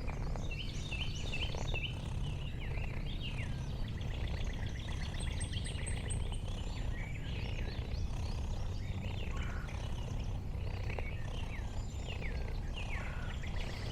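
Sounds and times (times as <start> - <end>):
birds chirping and calling: 4.0 - 13.9.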